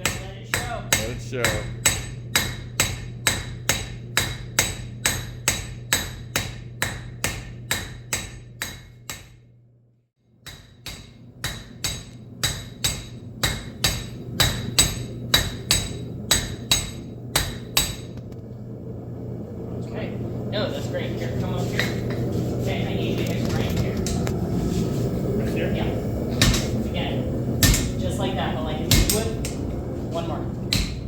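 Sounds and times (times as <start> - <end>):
hammer striking metal on anvil: 0.0 - 9.4, 10.4 - 18.1, 26.4 - 26.8, 27.6 - 28.0, 28.9 - 29.6, 30.7 - 31.0
steady low hum: 0.0 - 31.0.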